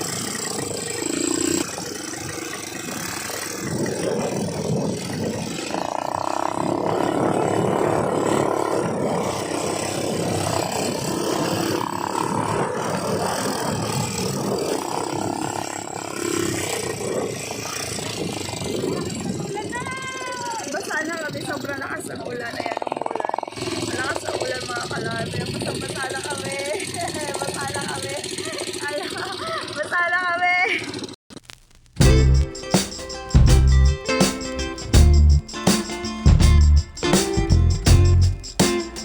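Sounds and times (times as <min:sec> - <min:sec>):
atv engine running: 0:00.0 - 0:30.2, 0:32.0 - 0:39.0
steady rushing noise: 0:32.0 - 0:39.0.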